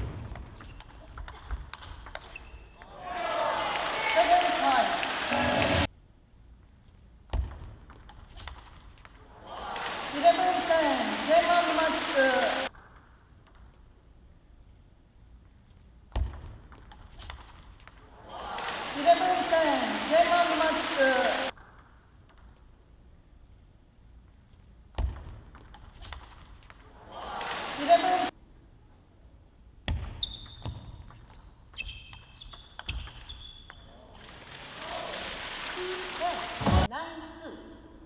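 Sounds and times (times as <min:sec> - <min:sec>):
table tennis ball clicks: 0:00.2 - 0:02.9, 0:21.6 - 0:22.7
shoes squeaking on floor: 0:02.2 - 0:02.8, 0:30.1 - 0:34.0.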